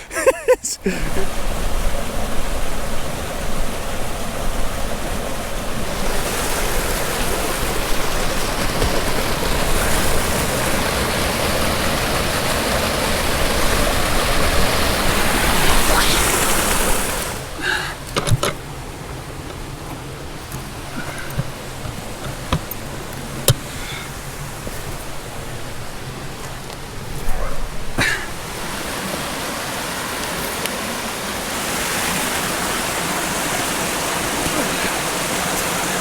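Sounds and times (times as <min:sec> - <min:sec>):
waterfall rushing: 0:00.0 - 0:36.0
light knocks: 0:19.4 - 0:23.8.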